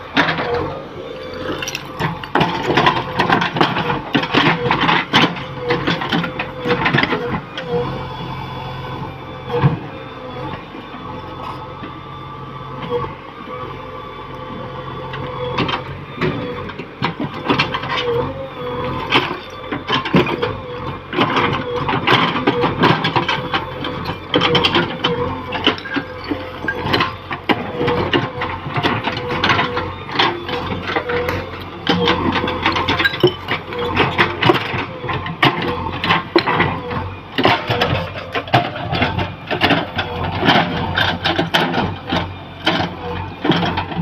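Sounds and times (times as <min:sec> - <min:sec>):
excavator engine under load: 0:00.0 - 0:44.0
irregular clanks and rattles: 0:21.2 - 0:36.8, 0:37.4 - 0:44.0.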